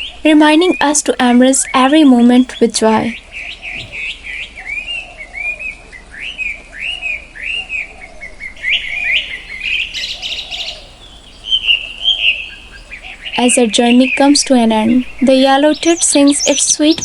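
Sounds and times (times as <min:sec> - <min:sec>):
buzzy bird trill: 0:00.0 - 0:04.2, 0:08.6 - 0:17.0
songbird chirping: 0:00.0 - 0:05.0, 0:07.5 - 0:17.0.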